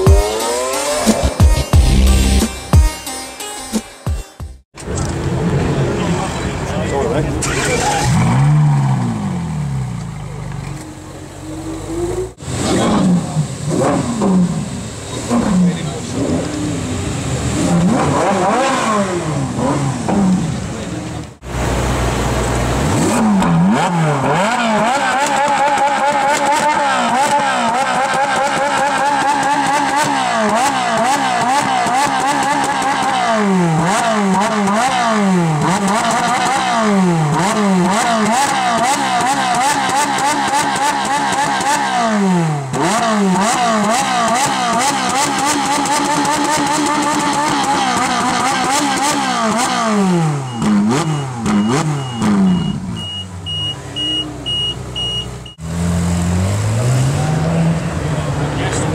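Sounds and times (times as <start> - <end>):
car engine revving: 0.0 - 2.6, 4.8 - 58.9.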